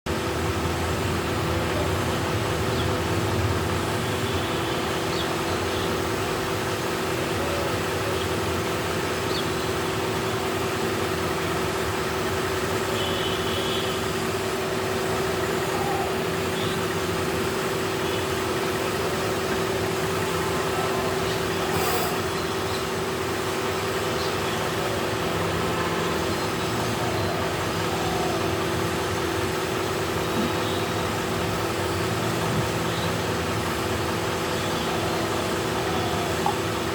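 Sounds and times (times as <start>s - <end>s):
machine drone: 14.1s - 36.9s.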